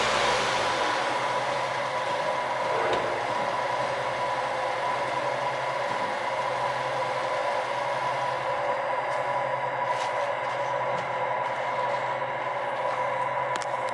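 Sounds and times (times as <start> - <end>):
car engine idling: 0.0 - 9.7.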